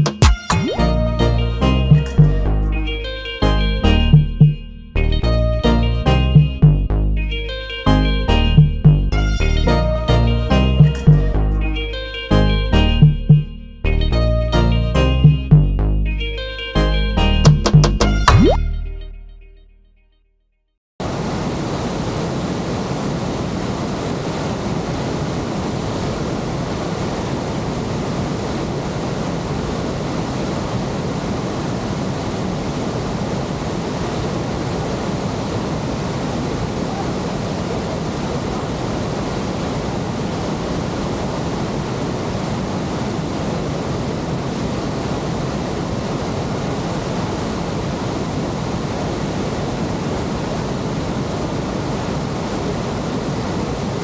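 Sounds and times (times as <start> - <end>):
rush of falling water: 21.0 - 54.0.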